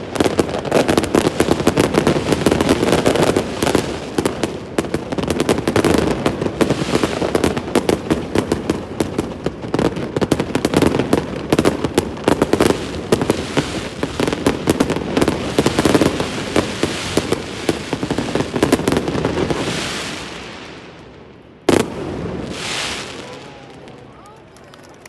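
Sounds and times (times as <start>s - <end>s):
fireworks banging and crackling: 0.0s - 25.0s
fireworks hiss: 12.5s - 21.0s, 21.8s - 23.6s.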